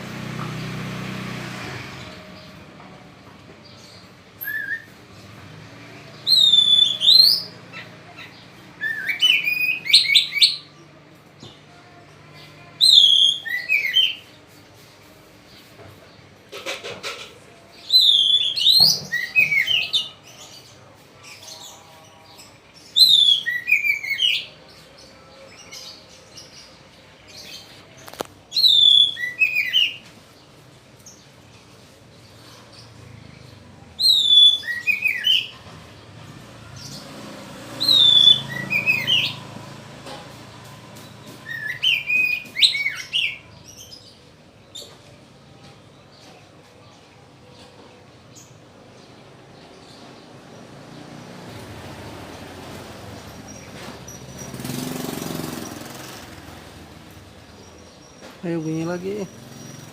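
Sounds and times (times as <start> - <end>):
bird singing whistled phrases: 4.4 - 5.0, 6.3 - 7.5, 12.8 - 14.2, 17.9 - 19.9, 23.0 - 24.4, 28.5 - 30.0, 34.0 - 35.5, 37.8 - 39.4, 41.4 - 43.4.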